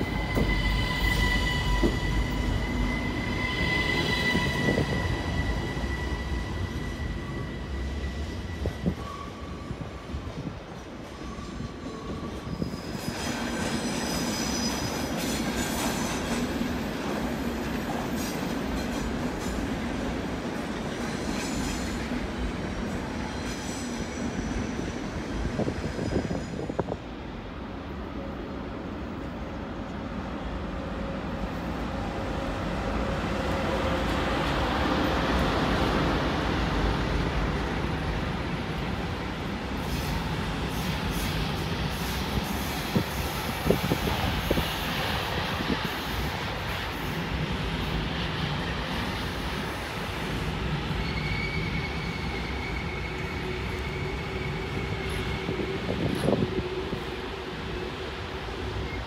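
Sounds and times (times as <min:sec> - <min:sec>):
wheel squeal: 0:00.0 - 0:09.6, 0:11.2 - 0:16.1, 0:50.9 - 0:55.6
train wheels rumbling on rail: 0:00.0 - 0:59.0.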